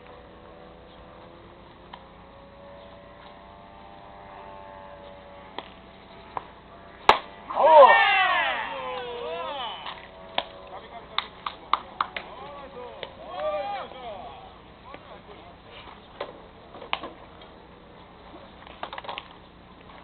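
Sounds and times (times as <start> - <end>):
sharp crack: 5.5 - 13.5
men shouting: 7.5 - 10.1, 12.0 - 14.7.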